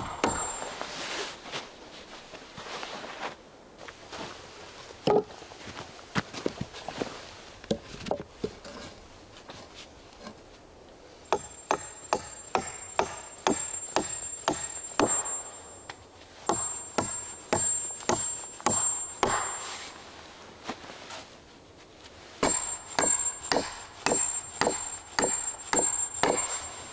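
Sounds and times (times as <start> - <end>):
tool striking wood: 0.0 - 1.0, 11.3 - 15.6, 16.5 - 19.9, 22.4 - 26.8.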